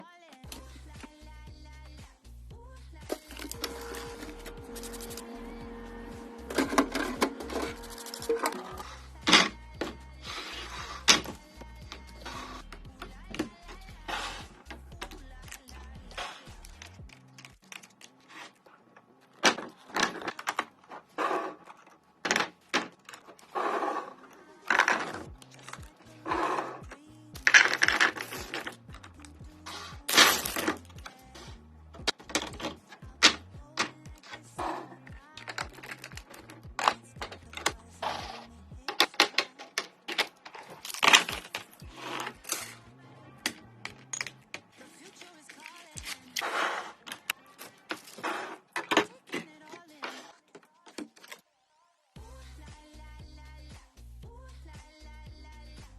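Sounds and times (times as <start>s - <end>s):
packaging rustling: 3.1s - 5.3s, 6.5s - 8.9s, 40.0s - 42.8s, 44.0s - 46.4s
plastic containers clattering: 3.1s - 5.3s, 6.5s - 10.0s, 16.7s - 29.3s, 30.0s - 31.2s, 31.9s - 42.8s, 43.4s - 51.4s
containers clicking and knocking: 6.5s - 10.0s, 24.6s - 29.4s, 32.0s - 37.9s, 38.8s - 42.8s.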